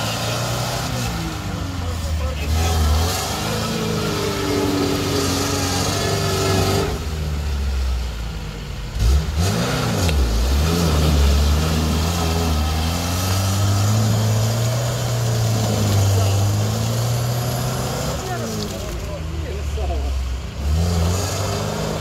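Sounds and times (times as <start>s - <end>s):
engine labouring through mud: 0.0s - 22.0s.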